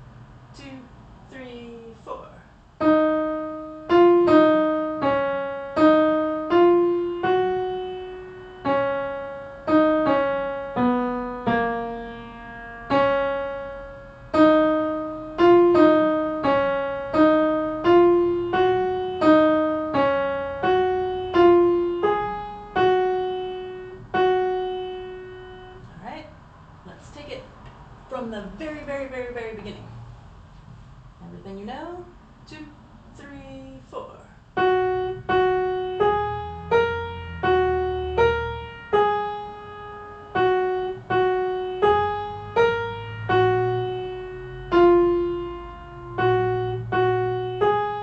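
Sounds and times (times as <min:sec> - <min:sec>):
piano melody: 0:02.8 - 0:26.0, 0:34.5 - 0:48.0.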